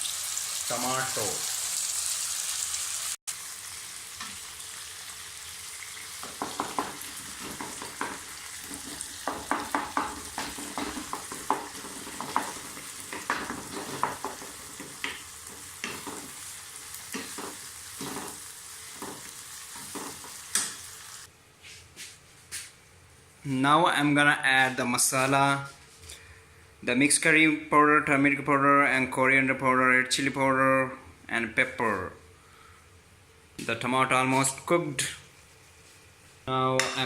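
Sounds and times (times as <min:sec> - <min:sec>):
food sizzling in oil: 0:00.0 - 0:21.3
spoon scraping a pan: 0:06.2 - 0:20.9.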